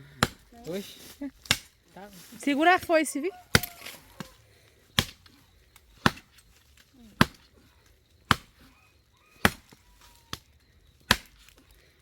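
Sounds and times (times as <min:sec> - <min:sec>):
billhook chopping into log: 0:00.2 - 0:00.4, 0:01.4 - 0:01.7, 0:03.5 - 0:03.9, 0:05.0 - 0:05.3, 0:06.0 - 0:06.4, 0:07.2 - 0:07.5, 0:08.3 - 0:08.6, 0:09.4 - 0:10.4, 0:11.1 - 0:11.6.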